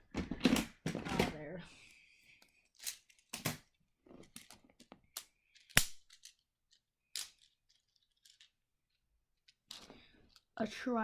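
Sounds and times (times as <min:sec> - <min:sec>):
plastic tiles clicking: 0:04.3 - 0:08.6.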